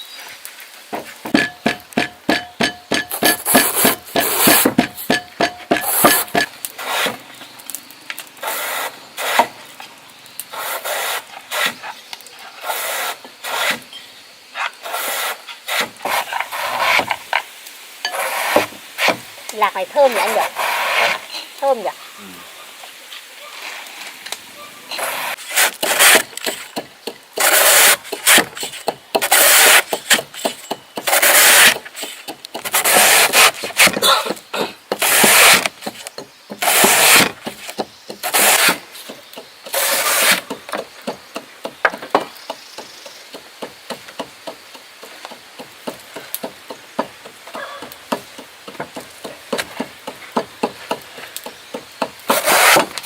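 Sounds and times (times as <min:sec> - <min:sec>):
hand rubbing or scraping strokes: 0:01.0 - 0:07.3, 0:18.1 - 0:19.3, 0:20.1 - 0:21.3, 0:24.9 - 0:26.8, 0:27.4 - 0:33.9, 0:36.6 - 0:38.8, 0:39.7 - 0:40.5, 0:52.3 - 0:52.9.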